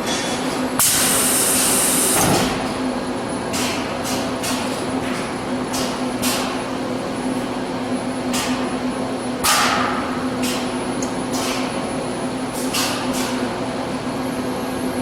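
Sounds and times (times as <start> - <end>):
welding hissing bursts: 0.8 - 2.2.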